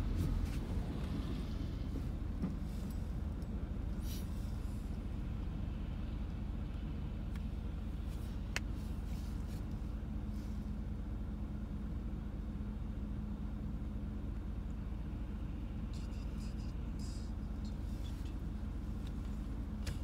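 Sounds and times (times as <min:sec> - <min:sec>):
car idling hum: 0:00.0 - 0:20.0.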